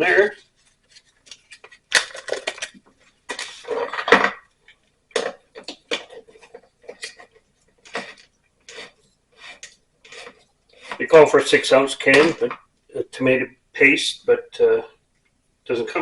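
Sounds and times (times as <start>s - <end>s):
utensil scraping cast iron pot: 7.9s - 11.2s.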